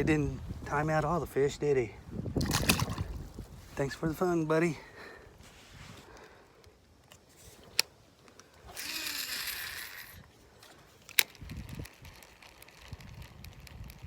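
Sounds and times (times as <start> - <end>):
line hissing off reel: 8.6 - 11.5
fishing reel sharp click: 8.7 - 14.0.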